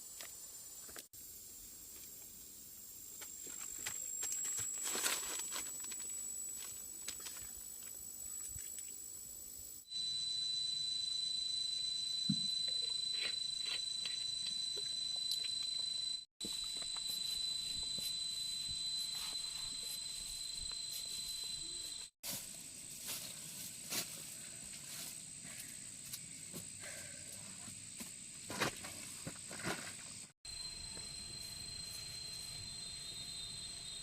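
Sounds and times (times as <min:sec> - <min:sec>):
high-pitched insect trilling: 0:02.0 - 0:22.2, 0:30.5 - 0:34.0.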